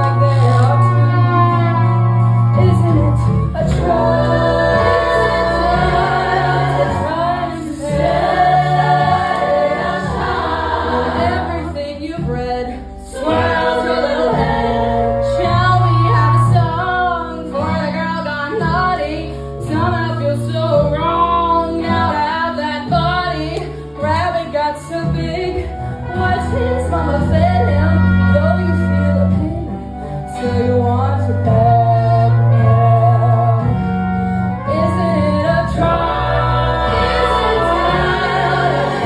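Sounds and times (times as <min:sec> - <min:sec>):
sustained low bass notes: 0:00.0 - 0:39.0
choir-like singing: 0:03.6 - 0:12.0, 0:13.1 - 0:16.0, 0:35.7 - 0:39.0.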